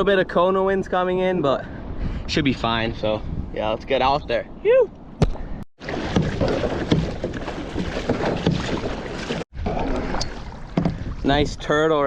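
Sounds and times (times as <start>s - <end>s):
wind on microphone: 1.7s - 12.0s
water splashing against hull: 5.2s - 11.9s.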